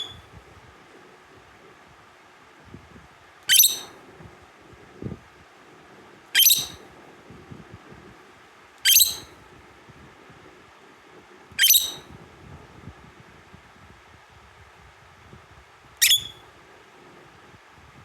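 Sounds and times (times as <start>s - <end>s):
lovebird shrill calls: 0.0s - 0.2s, 3.5s - 3.9s, 6.4s - 6.8s, 8.8s - 9.3s, 11.6s - 12.1s, 16.0s - 16.4s.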